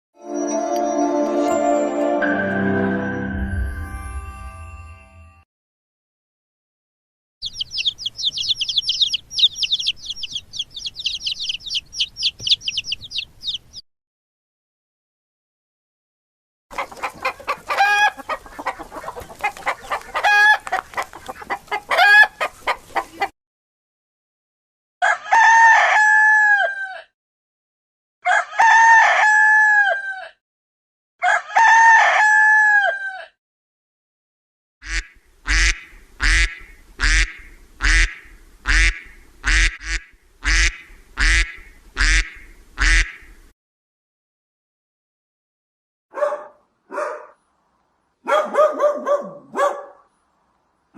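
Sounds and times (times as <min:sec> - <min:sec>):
chickens clucking: 0:07.4 - 0:13.8, 0:16.7 - 0:23.3
rooster crowing: 0:21.9 - 0:22.4, 0:25.0 - 0:27.2, 0:28.2 - 0:30.4, 0:31.2 - 0:33.4.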